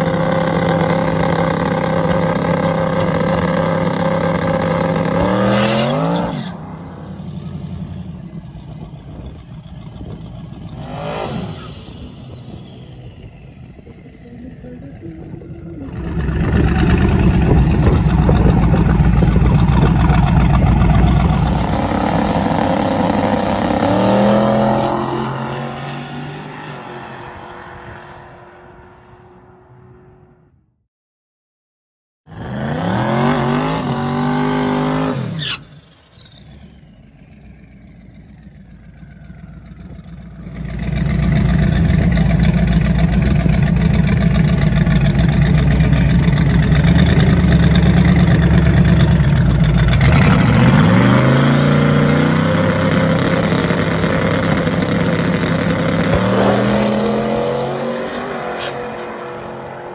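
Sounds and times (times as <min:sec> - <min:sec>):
drag car engine revving: 0:00.0 - 0:29.6, 0:32.3 - 0:59.9
turbo whistle: 0:51.6 - 0:52.9.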